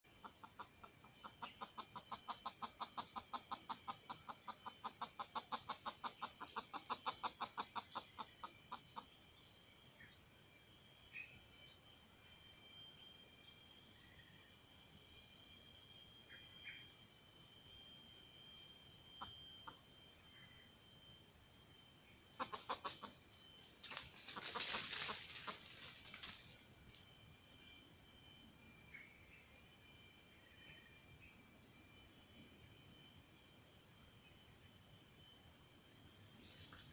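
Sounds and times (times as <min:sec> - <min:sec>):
high-pitched insect drone: 0:00.0 - 0:36.9
chicken clucking: 0:00.2 - 0:09.1, 0:22.4 - 0:23.2, 0:23.9 - 0:25.7.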